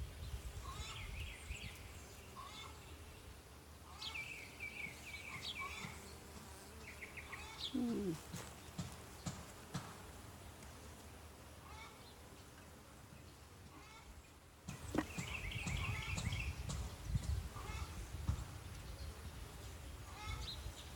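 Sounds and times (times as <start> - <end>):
birds chirping and trilling: 0.4 - 3.3, 3.9 - 9.4, 13.2 - 20.9
bees humming: 1.8 - 16.2
lower falling bird call: 7.4 - 8.4.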